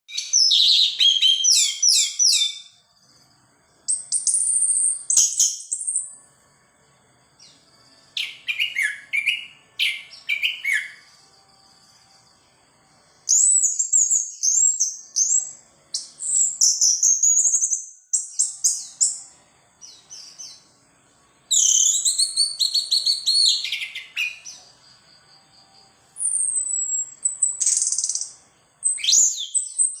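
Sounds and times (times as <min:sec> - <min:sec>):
thrush singing chirped phrases: 0:07.3 - 0:17.6, 0:18.2 - 0:30.0.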